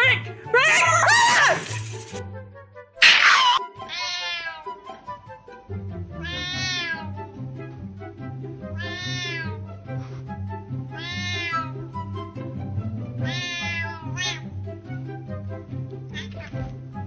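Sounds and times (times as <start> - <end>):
cat meowing: 3.0 - 4.8, 6.2 - 7.2, 8.8 - 9.6, 10.9 - 11.8, 13.2 - 14.5, 16.1 - 16.6
background music with bass line: 5.1 - 8.8, 9.6 - 13.5.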